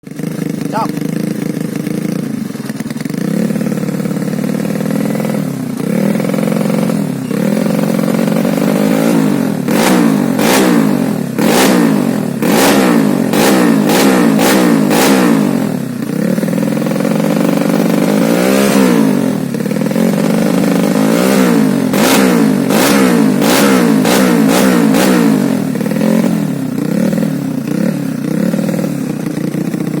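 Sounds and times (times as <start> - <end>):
exhaust popping: 0.0 - 30.0
scooter engine revving: 0.0 - 30.0.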